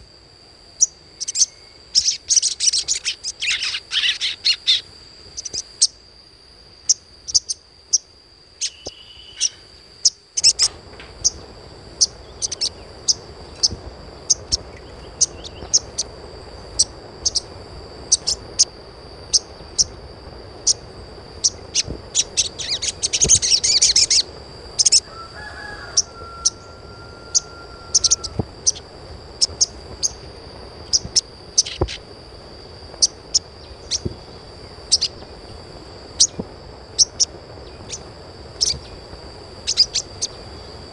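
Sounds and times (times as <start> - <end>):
dense bird twittering: 0.7 - 6.0, 6.8 - 32.1, 32.9 - 40.9
birds chirping: 0.8 - 6.0, 6.8 - 32.1, 32.8 - 40.9.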